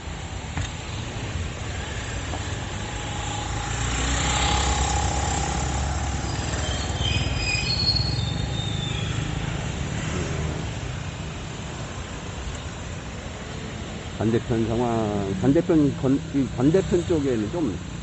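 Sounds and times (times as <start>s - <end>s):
vehicle passing close: 2.6s - 11.5s
high squealing tones: 6.1s - 8.9s.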